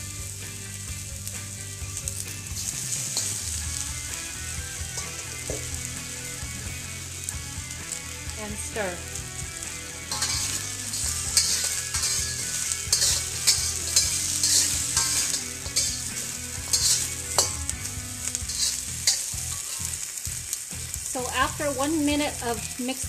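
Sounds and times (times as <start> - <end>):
chicken sizzling in a wok: 0.0 - 23.0
utensil scraping a wok: 1.0 - 22.8.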